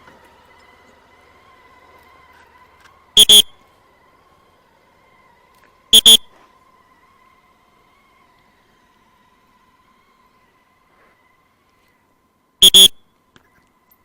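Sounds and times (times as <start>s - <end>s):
traffic whistle blasts: 3.2s - 3.6s, 5.9s - 6.4s, 12.6s - 13.2s.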